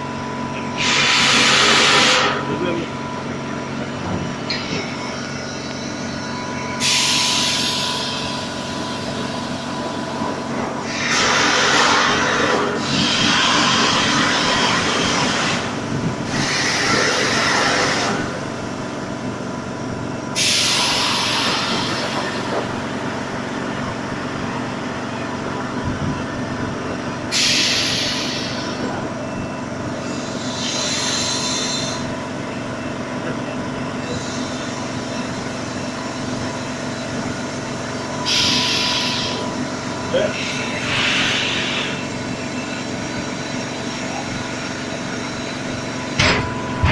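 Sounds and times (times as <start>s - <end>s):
air compressor humming: 0.0s - 25.0s, 25.8s - 46.9s
bursts of hissing air: 0.8s - 2.4s, 10.8s - 18.3s, 38.3s - 39.4s.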